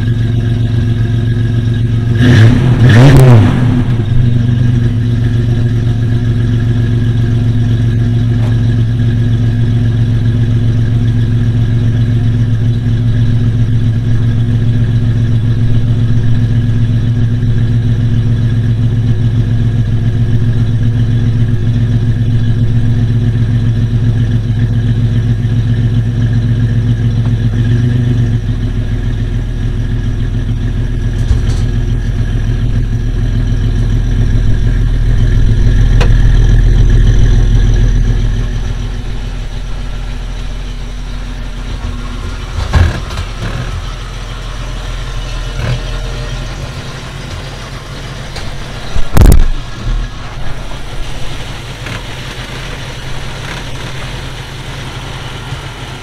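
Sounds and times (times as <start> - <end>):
car engine running: 0.0 - 56.0
sharp thumps: 30.8 - 47.6, 48.3 - 50.6.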